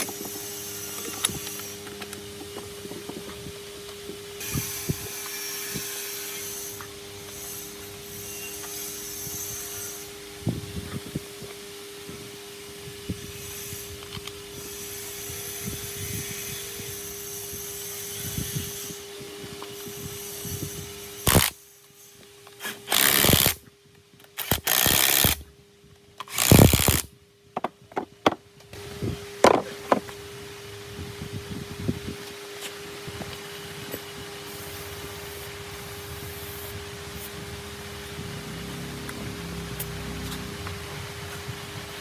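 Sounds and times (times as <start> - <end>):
steady hum: 0.0 - 42.0
power tool running: 19.7 - 21.6, 22.6 - 23.6, 24.4 - 25.5, 26.2 - 27.1, 34.5 - 41.0.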